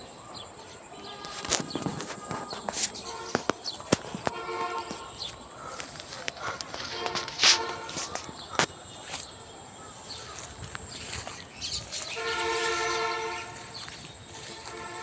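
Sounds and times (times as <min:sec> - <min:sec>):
horn chord: 0:12.2 - 0:15.0.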